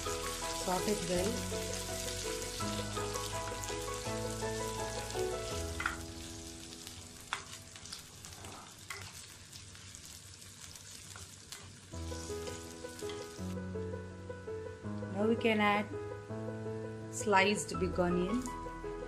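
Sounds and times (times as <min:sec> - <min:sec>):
background music: 0:00.0 - 0:07.8, 0:12.0 - 0:19.0
spices sizzling in hot oil: 0:00.0 - 0:13.7, 0:17.3 - 0:18.7.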